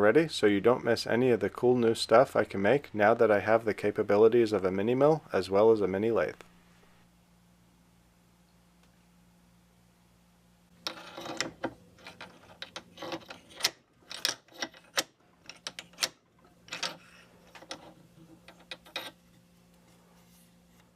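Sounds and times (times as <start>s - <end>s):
faint steady hum: 0.0s - 20.9s.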